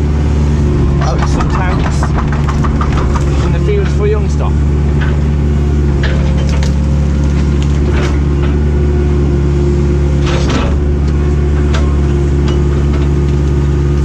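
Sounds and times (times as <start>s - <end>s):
excavator diesel engine under load: 0.0s - 14.0s
crunching noise: 0.7s - 8.2s
branches cracking and snapping: 6.2s - 8.3s.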